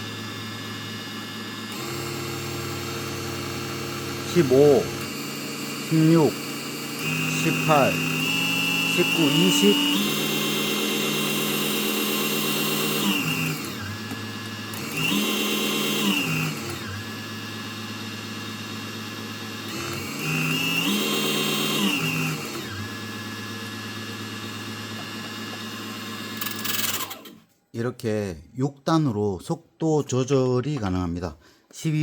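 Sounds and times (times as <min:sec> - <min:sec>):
small motor whining: 0:00.0 - 0:27.4.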